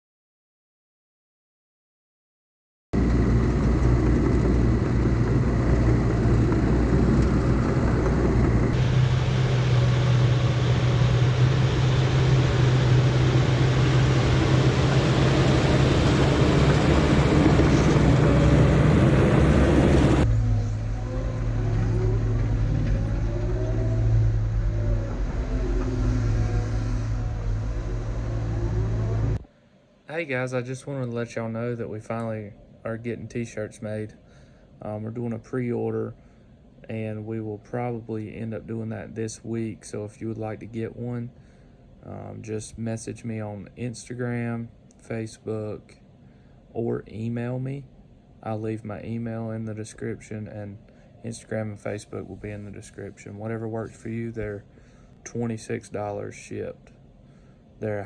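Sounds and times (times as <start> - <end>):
heavy machine diesel engines running: 3.0 - 29.4.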